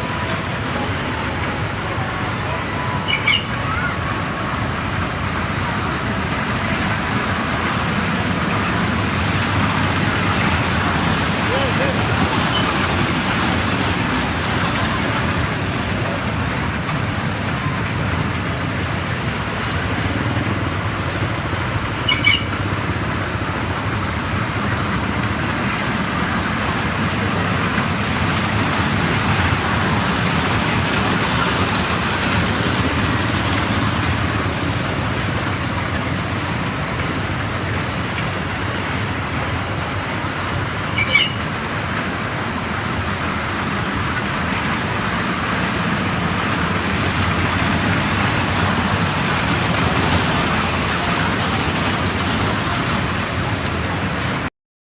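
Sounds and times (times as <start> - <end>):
moving train rumble: 0.0 - 54.5
brief high squeaks: 3.0 - 4.0, 7.9 - 8.2, 22.0 - 22.7, 40.9 - 41.6, 45.8 - 46.0.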